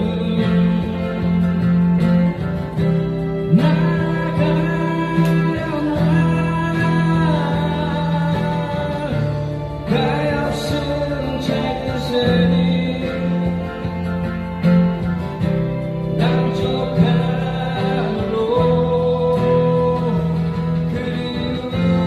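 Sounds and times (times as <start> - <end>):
held melody line: 0.0 - 22.0
strummed acoustic guitars: 0.0 - 22.0.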